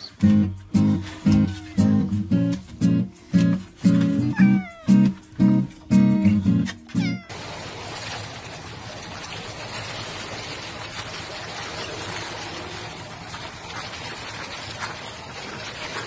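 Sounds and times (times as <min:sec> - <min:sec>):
cat meowing: 0:01.1 - 0:02.2, 0:04.2 - 0:05.2, 0:06.9 - 0:07.4.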